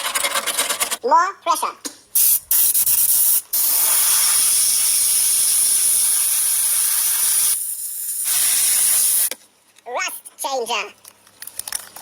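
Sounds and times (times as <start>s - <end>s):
pressurized gas hissing from nozzle: 2.2s - 9.3s.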